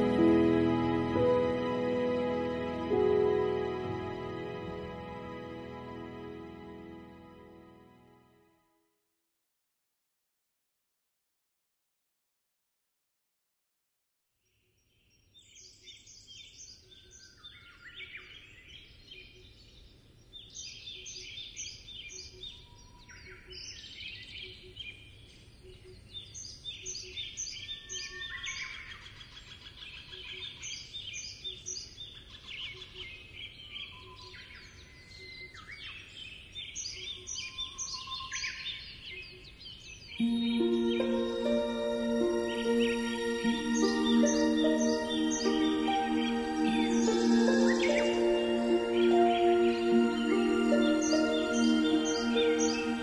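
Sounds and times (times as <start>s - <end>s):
instrumental music: 0.0s - 8.6s, 40.2s - 53.0s
birds singing: 14.5s - 53.0s.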